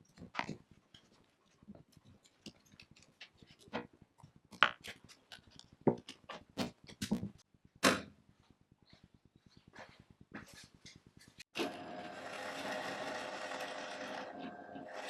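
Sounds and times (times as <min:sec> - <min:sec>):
objects clicking and knocking: 0:00.0 - 0:08.1.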